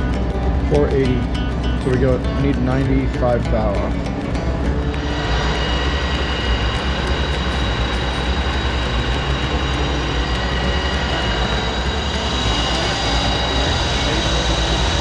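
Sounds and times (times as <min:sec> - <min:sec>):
machine tool high whine: 0:03.9 - 0:15.0.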